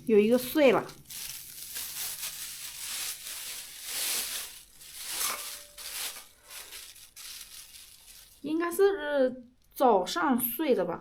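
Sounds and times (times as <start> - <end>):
plastic bag crinkling: 0.6 - 8.8.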